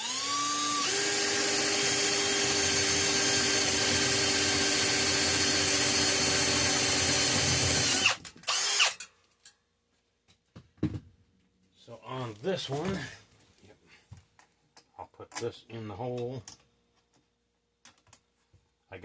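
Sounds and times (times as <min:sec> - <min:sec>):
electric drill whining: 0:00.0 - 0:09.1.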